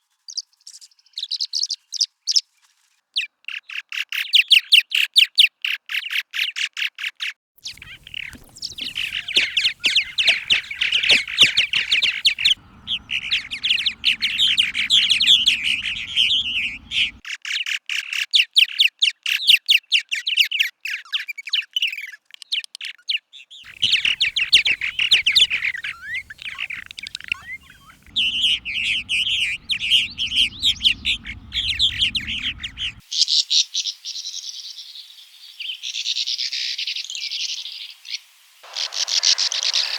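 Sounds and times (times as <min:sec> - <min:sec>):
swallows twittering: 0:07.6 - 0:17.2, 0:23.7 - 0:33.0
low background rumble: 0:07.8 - 0:17.2, 0:23.7 - 0:33.0.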